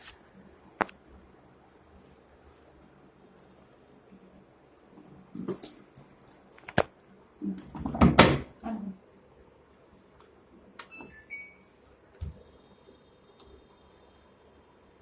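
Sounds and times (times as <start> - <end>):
washing machine clicks and knocks: 7.7 - 8.5
electronic beeps: 10.8 - 11.8.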